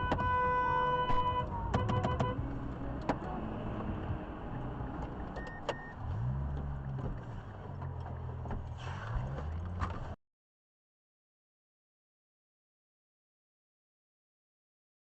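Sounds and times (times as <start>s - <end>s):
car engine and road noise: 0.0s - 10.2s.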